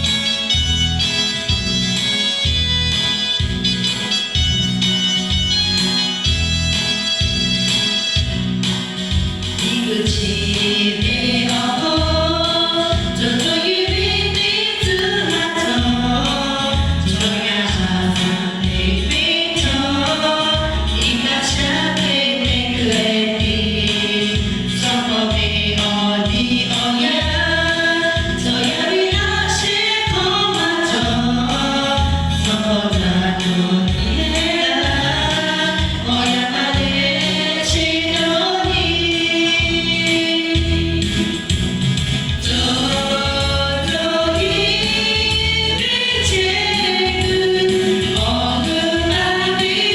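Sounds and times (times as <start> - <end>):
band accompaniment with steady beat: 0.0 - 49.9
choir singing gospel song: 9.6 - 41.6, 42.3 - 49.9.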